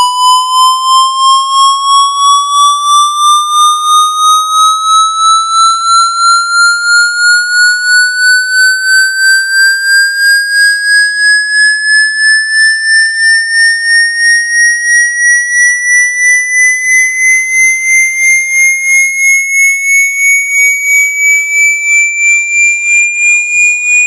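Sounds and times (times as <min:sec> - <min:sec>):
pulsing electronic rising tone: 0:00.0 - 0:13.9.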